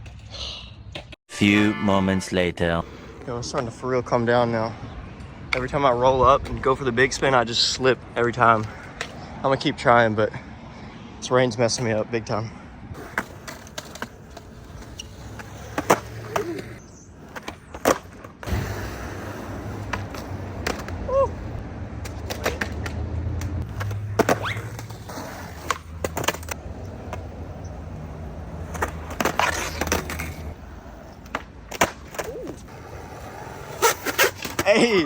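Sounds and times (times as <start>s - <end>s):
skateboard wheels rolling on concrete: 2.8s - 35.0s
skateboard clacking on ground: 13.0s - 21.4s, 22.0s - 35.0s.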